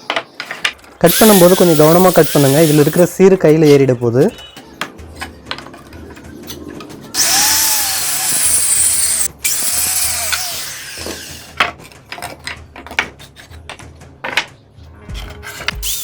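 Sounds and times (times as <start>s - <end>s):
power tool cutting wood: 1.1s - 3.0s, 7.2s - 11.6s, 15.7s - 16.0s
knocks of wood being handled: 11.6s - 15.8s.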